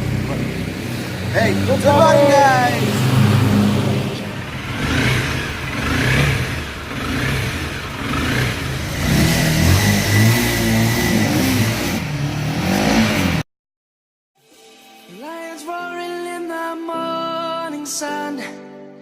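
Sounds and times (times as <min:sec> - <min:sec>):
motorcycle engine revving: 0:00.0 - 0:13.4.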